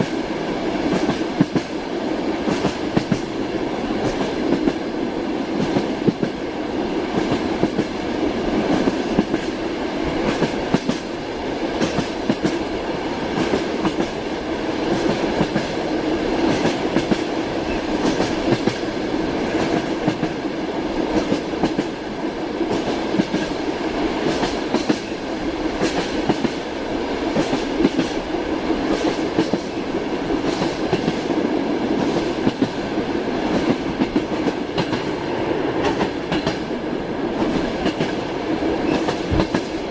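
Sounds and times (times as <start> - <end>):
train wheels rumbling on rails: 0.0 - 39.9
rail joint clicks and knocks: 0.8 - 1.8, 2.4 - 3.4, 10.2 - 12.7, 16.4 - 20.4, 21.1 - 22.0, 24.2 - 26.6, 30.4 - 32.8, 33.4 - 39.9.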